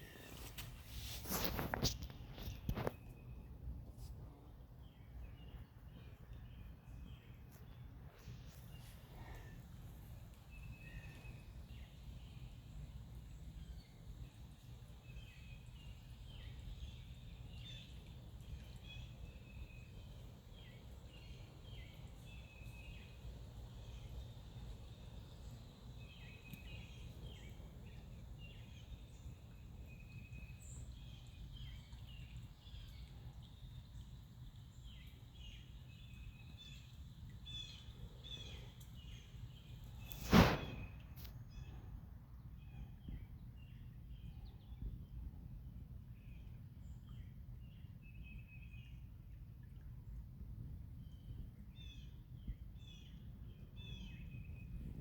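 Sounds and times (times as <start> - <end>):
faint bird chirps: 4.8 - 41.9.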